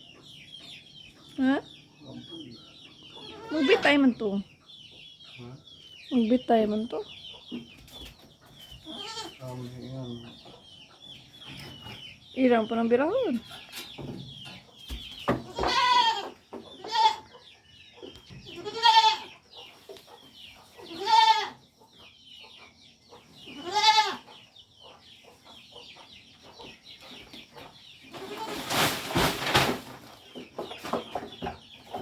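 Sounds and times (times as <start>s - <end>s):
goat bleating: 3.2s - 3.9s, 8.8s - 9.4s, 15.5s - 17.3s, 18.6s - 19.3s, 20.9s - 21.6s, 23.5s - 24.2s.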